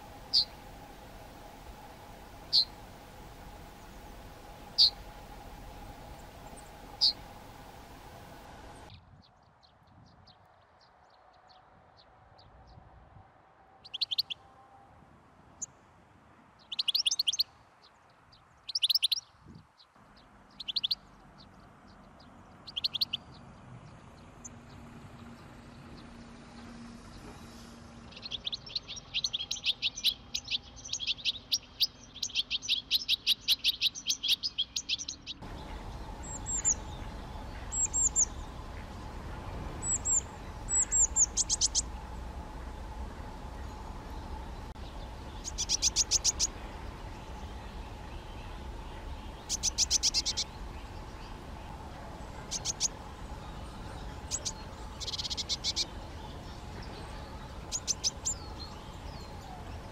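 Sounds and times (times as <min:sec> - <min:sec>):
faint steady hum: 0:00.0 - 0:08.9, 0:35.4 - 0:59.9
finch singing trills: 0:00.0 - 0:08.9, 0:20.5 - 0:21.1, 0:28.2 - 0:59.9.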